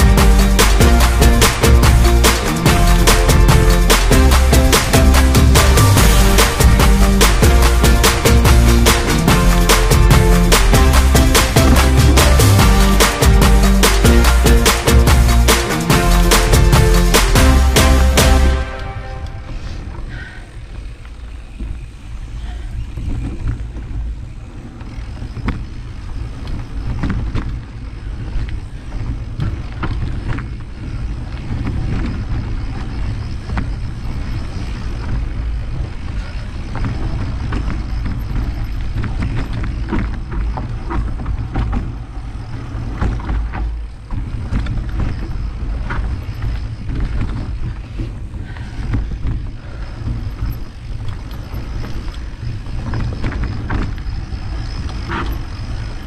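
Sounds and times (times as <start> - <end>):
bike clattering and rattling: 0.0 - 56.0
wind rumble on microphone: 18.6 - 56.0.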